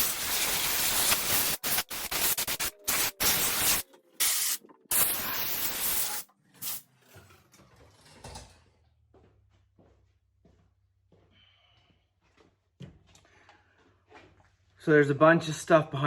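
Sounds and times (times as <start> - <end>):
compressed air blow gun hissing: 0.0 - 6.8.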